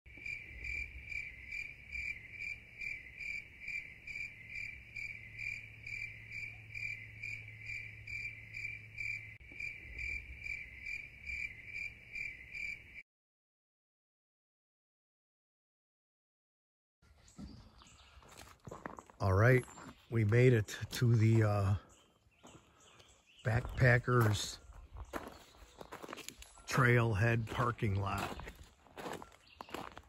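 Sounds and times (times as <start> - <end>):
insect chirping: 0.1 - 13.0.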